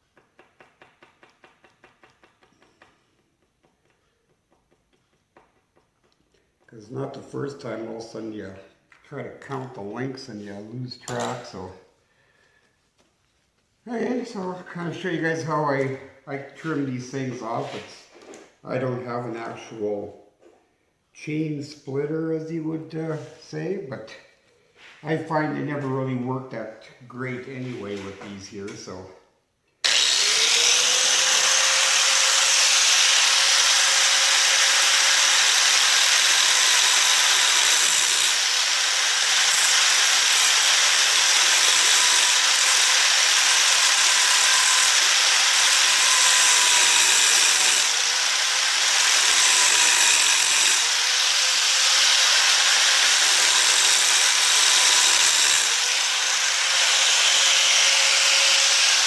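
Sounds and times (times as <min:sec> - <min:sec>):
power tool grinding steel chain: 0:09.4 - 0:11.7, 0:29.8 - 0:59.0.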